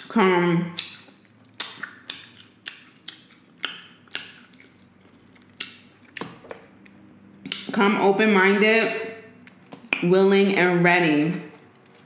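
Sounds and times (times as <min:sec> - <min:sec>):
wet mouth clicks and smacks: 0:00.8 - 0:06.6, 0:07.4 - 0:07.7.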